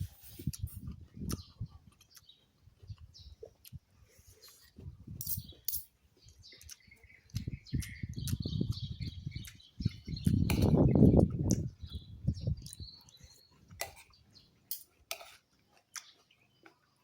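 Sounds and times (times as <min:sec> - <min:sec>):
chewing and mouth noises: 0:00.4 - 0:17.0
sharp mouth clicks: 0:06.6 - 0:11.7.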